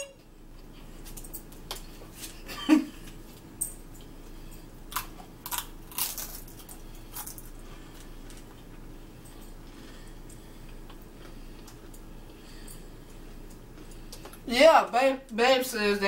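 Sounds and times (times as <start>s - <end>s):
crunchy food chewing: 4.8s - 14.4s.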